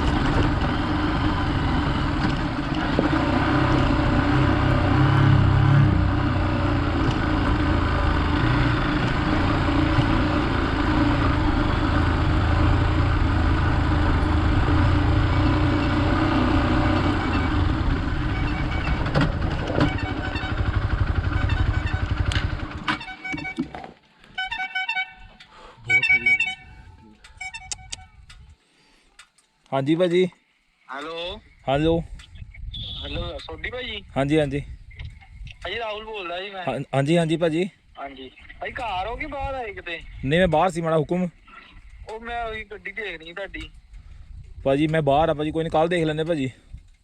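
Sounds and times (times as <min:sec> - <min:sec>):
motorcycle engine running: 0:00.0 - 0:23.6
wind noise: 0:31.4 - 0:35.8, 0:43.5 - 0:47.0.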